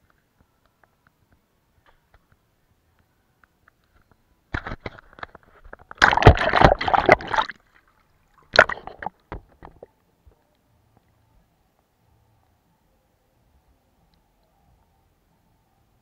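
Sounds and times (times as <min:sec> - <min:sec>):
water sloshing in a jar: 0:04.6 - 0:09.9.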